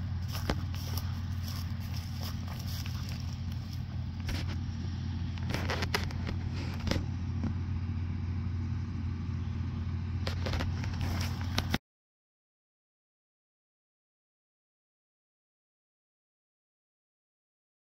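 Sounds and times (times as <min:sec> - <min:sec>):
combine engine drone: 0:00.0 - 0:11.8.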